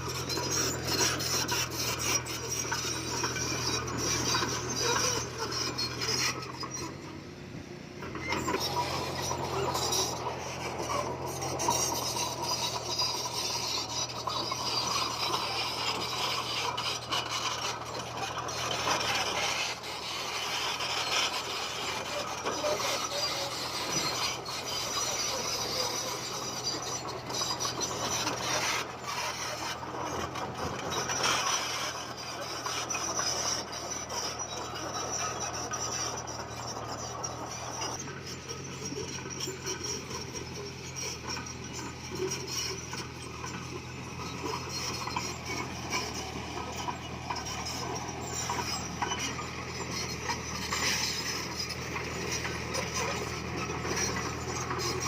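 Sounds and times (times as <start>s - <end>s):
bulldozer diesel engine: 0.0s - 55.0s
steel tracks clattering: 8.1s - 38.1s.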